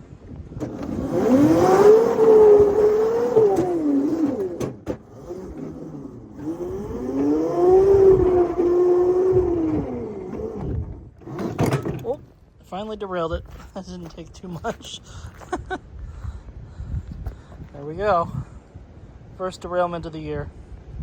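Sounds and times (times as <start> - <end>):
locomotive passing with whine: 0.8 - 11.4.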